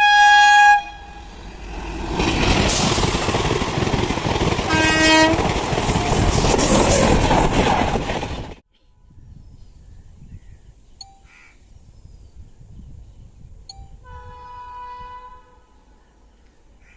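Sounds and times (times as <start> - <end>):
train horn blast: 0.0 - 1.5, 4.7 - 5.5, 14.0 - 15.9
train passing at speed: 0.0 - 8.6.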